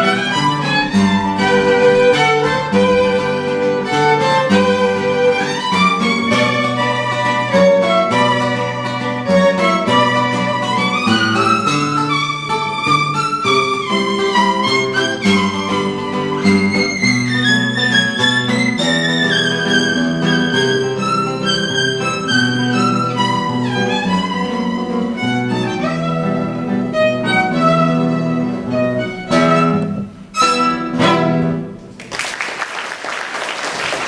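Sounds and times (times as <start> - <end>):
bowed violin melody: 0.0 - 31.9
audience applause: 31.9 - 34.0.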